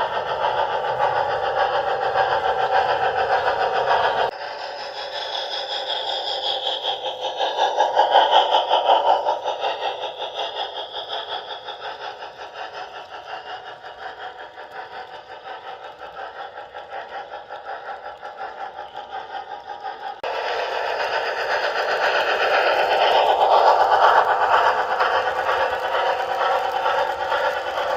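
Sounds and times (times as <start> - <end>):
model train motor hum: 0.0 - 27.9
wheels clattering over rails: 0.0 - 27.9.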